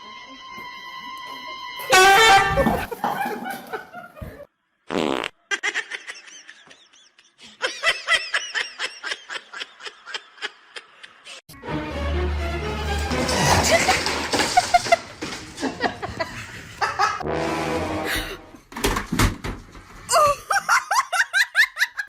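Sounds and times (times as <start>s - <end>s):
buzzy fart-like noise: 4.9s - 5.4s, 17.2s - 18.6s
high-pitched laughter: 20.1s - 22.0s.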